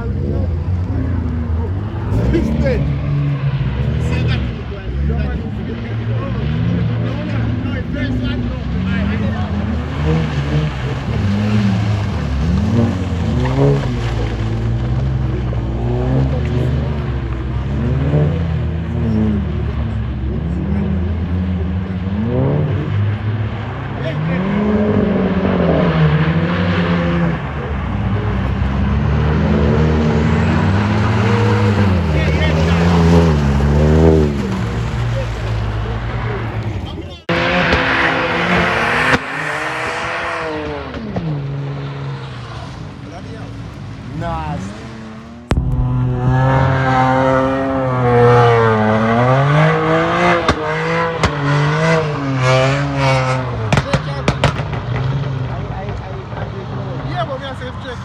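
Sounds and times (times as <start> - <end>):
car engine revving hard: 0.0 - 57.7
sharp cracks: 45.5 - 49.0.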